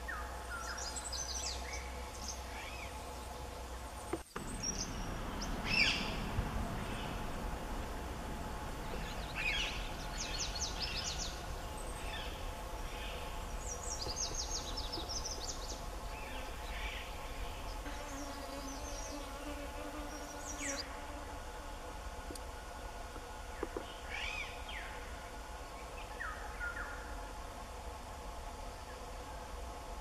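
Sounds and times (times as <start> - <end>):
steady droning background: 0.0 - 30.0
birds rapid high chirps: 4.2 - 7.4, 8.4 - 19.6.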